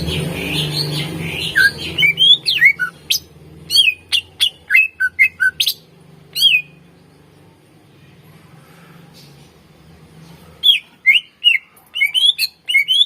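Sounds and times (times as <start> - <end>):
bird warbling and whistling: 0.4 - 5.8, 10.6 - 13.0.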